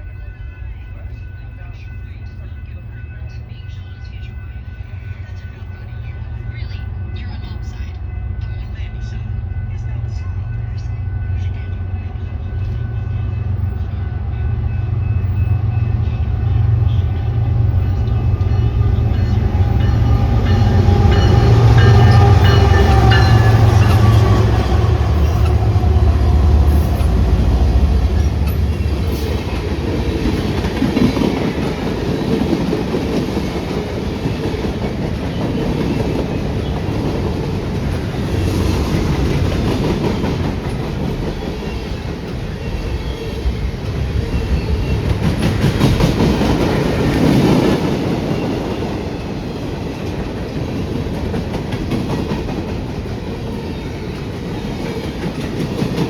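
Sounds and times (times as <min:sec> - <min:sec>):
low locomotive rumble: 0:05.7 - 0:48.3.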